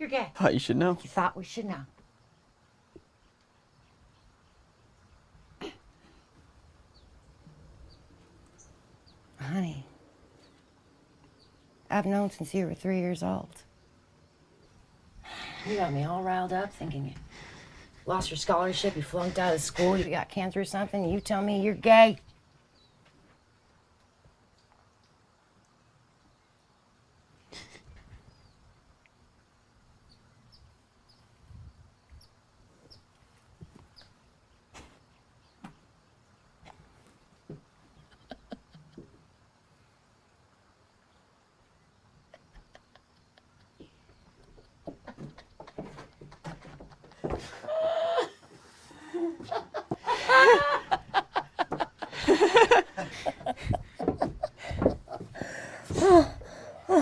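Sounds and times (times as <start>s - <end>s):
person laughing: 42.3s - 43.9s, 47.4s - 57.0s.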